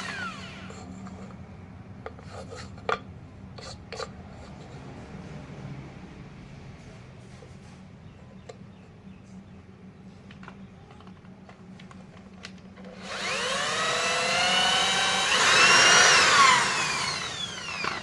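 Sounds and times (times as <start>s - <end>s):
electric power tool motor whining: 0.0s - 0.8s, 12.8s - 18.0s.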